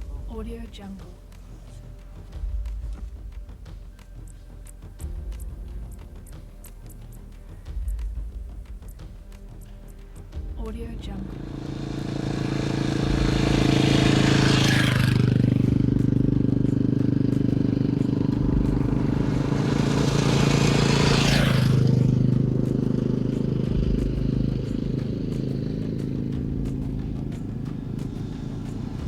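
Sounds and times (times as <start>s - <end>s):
motorcycle engine running: 0.0s - 29.0s
vehicles rushing past: 8.7s - 29.0s.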